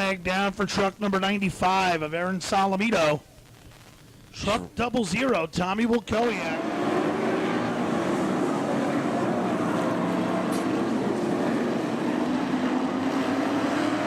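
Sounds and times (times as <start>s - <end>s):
race truck engines droning: 6.4s - 14.0s.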